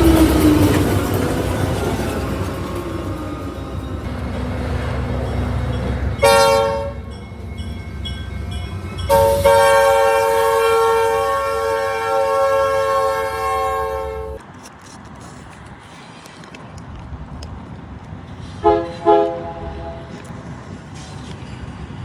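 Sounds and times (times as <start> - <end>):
train low rumble: 0.0 - 22.0
locomotive air horn: 6.2 - 7.2, 9.0 - 14.4, 18.6 - 20.2.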